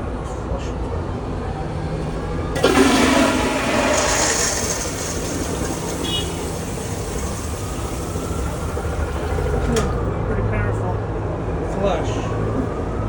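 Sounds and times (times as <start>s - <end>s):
toilet flushing: 2.4s - 10.1s.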